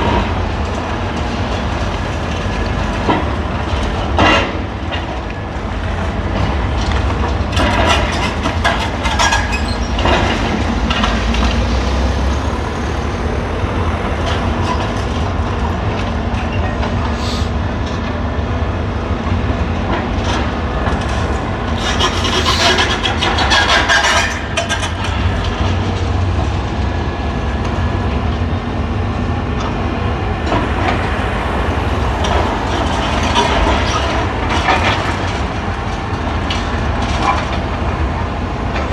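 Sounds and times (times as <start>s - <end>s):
heavy diesel machine droning: 7.6s - 33.8s.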